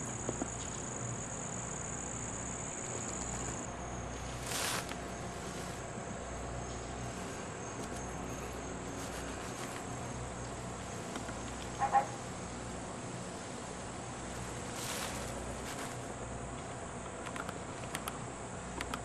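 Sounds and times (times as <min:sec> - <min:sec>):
insects trilling: 0:00.0 - 0:19.0
low background hum: 0:00.0 - 0:19.0
rustling: 0:02.8 - 0:11.8, 0:14.2 - 0:16.2.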